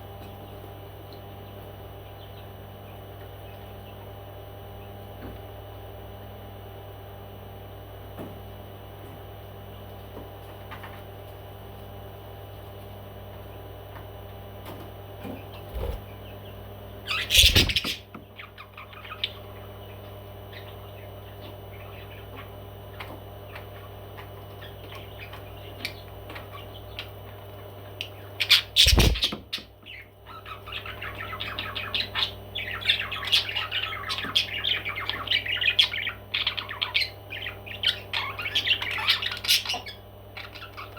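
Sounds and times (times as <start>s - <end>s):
steady low hum: 0.0s - 38.3s
parrot squawking and chattering: 17.1s - 18.0s, 28.4s - 29.4s.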